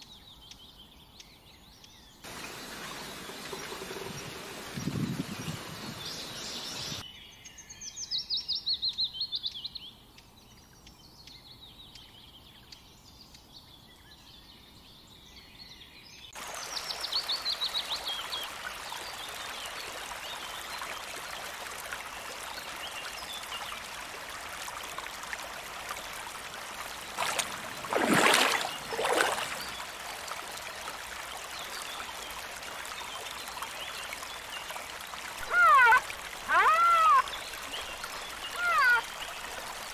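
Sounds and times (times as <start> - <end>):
running water: 2.2 - 7.0, 16.4 - 39.9
small birds trilling: 2.3 - 7.0, 25.9 - 30.4, 31.6 - 39.9.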